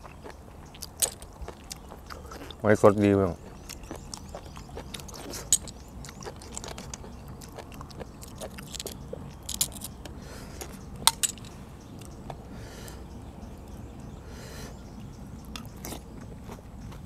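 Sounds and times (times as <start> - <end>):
person chewing: 0.0 - 2.6, 3.4 - 11.4, 15.0 - 17.0
spoon clicking against shells: 8.6 - 10.0.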